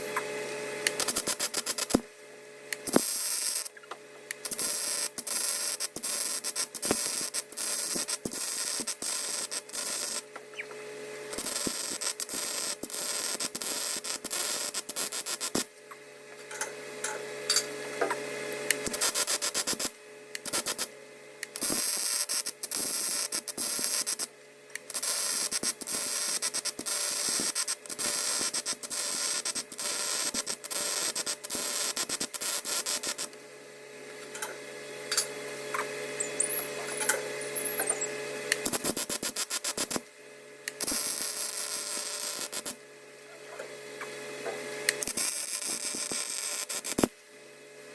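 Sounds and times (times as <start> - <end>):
welding arc crackling: 0.0 - 10.4, 11.3 - 15.7, 18.7 - 33.4, 36.2 - 40.1, 40.7 - 42.9, 44.8 - 47.2.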